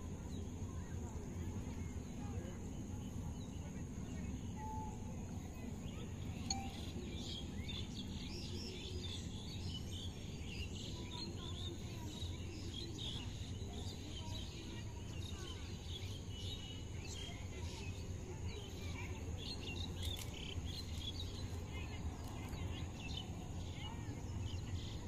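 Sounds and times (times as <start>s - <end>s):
birds chirping: 5.5s - 18.0s.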